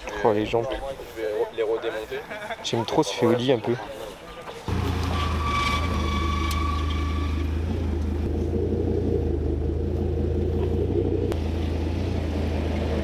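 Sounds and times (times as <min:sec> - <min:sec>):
car engine idling: 0:04.7 - 0:13.0.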